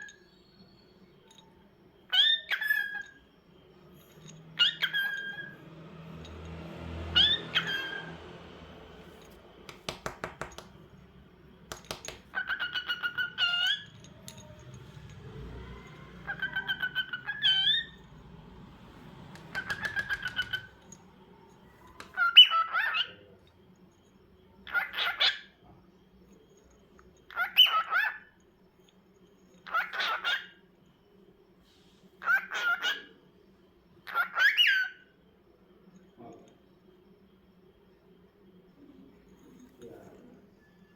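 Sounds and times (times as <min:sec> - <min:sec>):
cockatiel chirping calls: 0:02.1 - 0:03.2, 0:04.6 - 0:05.6, 0:07.1 - 0:08.2, 0:11.8 - 0:14.1, 0:15.6 - 0:18.2, 0:19.3 - 0:21.0, 0:21.8 - 0:23.3, 0:24.6 - 0:25.6, 0:27.3 - 0:28.3, 0:29.6 - 0:30.6, 0:32.2 - 0:33.2, 0:34.0 - 0:35.1
rapid clicks: 0:19.3 - 0:21.1.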